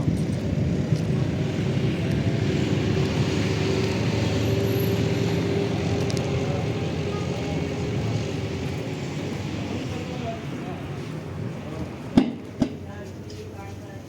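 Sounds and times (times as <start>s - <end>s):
vehicle engine droning: 0.0s - 14.0s.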